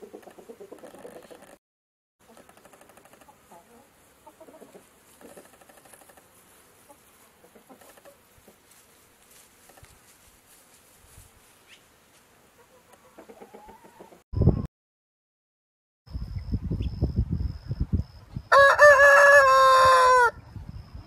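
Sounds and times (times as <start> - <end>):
chickens clucking: 0.0 - 1.6, 2.2 - 8.8, 12.5 - 14.2.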